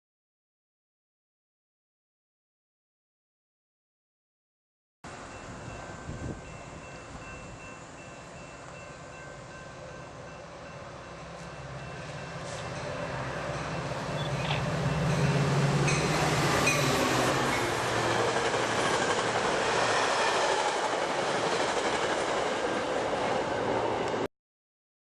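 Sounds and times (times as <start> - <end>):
diesel locomotive engine drone: 5.1 - 24.3
train wheels clattering on rails: 13.6 - 23.2.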